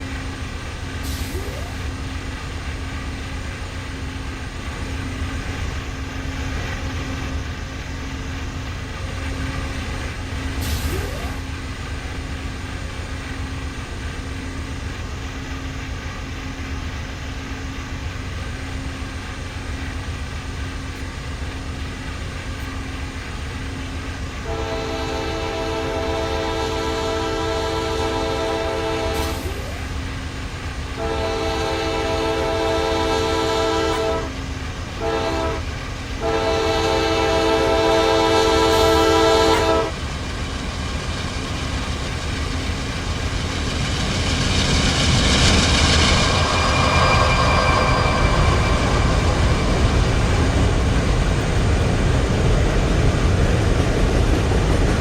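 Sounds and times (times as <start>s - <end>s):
train rumbling: 0.0s - 55.0s
train horn chord: 24.4s - 29.6s, 31.0s - 34.4s, 35.0s - 40.0s.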